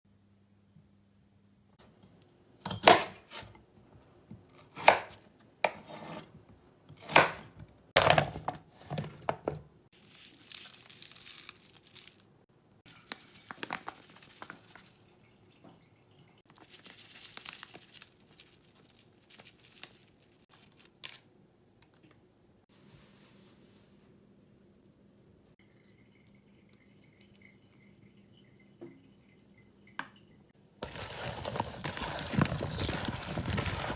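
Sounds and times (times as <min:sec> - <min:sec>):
knife chopping on cutting board: 0:02.6 - 0:03.4, 0:04.7 - 0:06.2, 0:07.0 - 0:08.3
knife scraping on cutting board: 0:02.7 - 0:03.6, 0:04.6 - 0:06.3.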